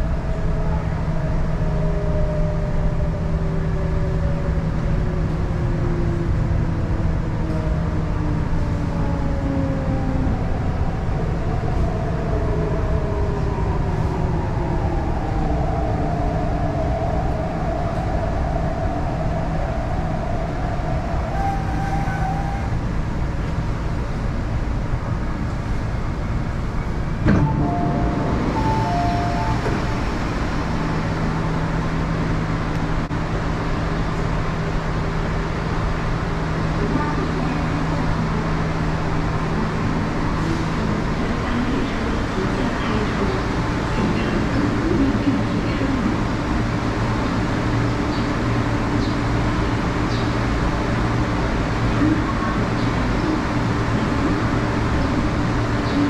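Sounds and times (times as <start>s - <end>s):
train wheels rumbling on rails: 0.0s - 56.0s
steady low hum: 25.7s - 33.6s
short beeps: 27.3s - 30.2s.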